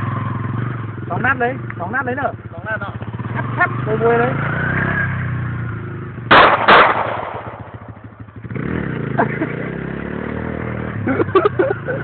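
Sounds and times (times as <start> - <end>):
dirt bike engine running: 0.0 - 12.0
pistol shots: 6.3 - 8.0.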